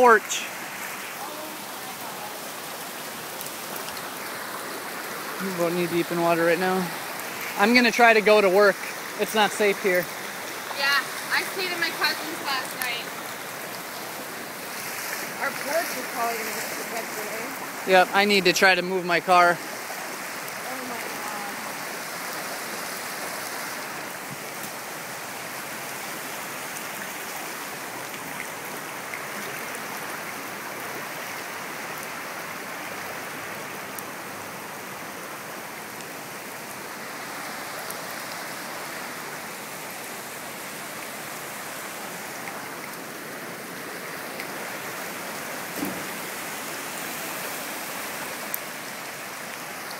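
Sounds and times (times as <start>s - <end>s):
floodwater rushing: 0.0s - 49.9s
short knock: 45.8s - 46.2s.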